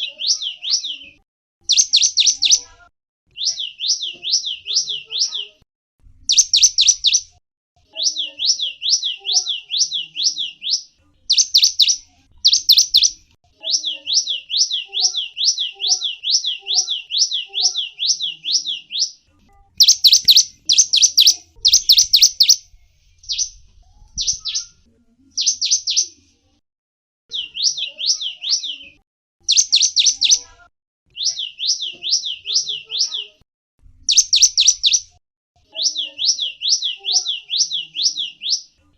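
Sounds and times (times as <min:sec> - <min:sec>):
bird chirping in fast trains: 0:01.6 - 0:02.6, 0:06.3 - 0:07.3, 0:08.1 - 0:13.2, 0:19.8 - 0:22.6, 0:29.5 - 0:30.4, 0:34.1 - 0:35.1.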